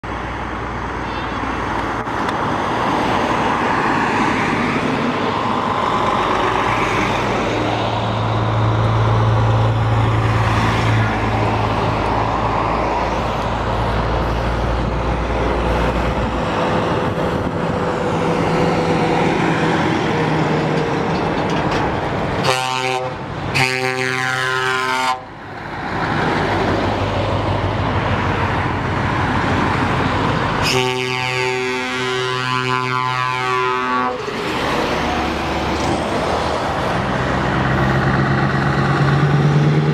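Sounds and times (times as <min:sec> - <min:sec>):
trucks driving past: 0:00.0 - 0:39.9
truck horn blasts: 0:22.4 - 0:25.3, 0:30.6 - 0:34.2.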